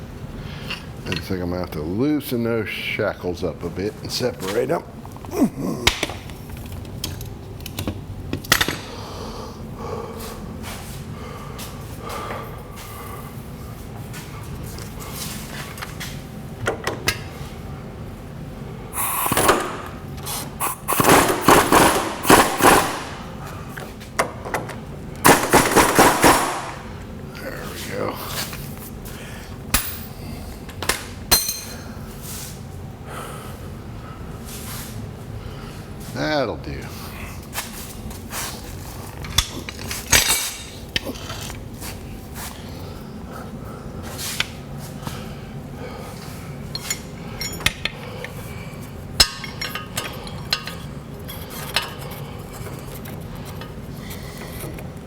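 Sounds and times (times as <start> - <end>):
low background hum: 0.0 - 55.0
hammer striking steel: 21.0 - 23.3, 31.3 - 31.8.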